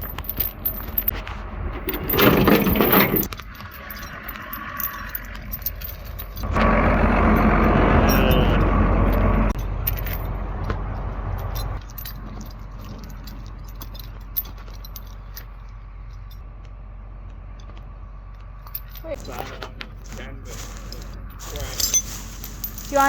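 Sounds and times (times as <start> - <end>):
metallic rattles and clinks: 0.0 - 1.2, 1.8 - 6.6, 9.1 - 16.4, 18.6 - 23.0
engine running: 0.0 - 23.0.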